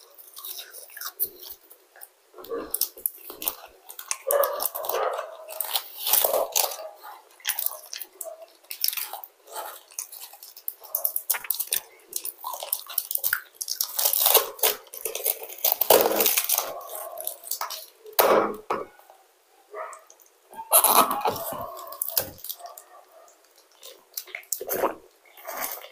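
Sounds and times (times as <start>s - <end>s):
person chewing food: 0.0s - 18.2s, 19.8s - 25.9s.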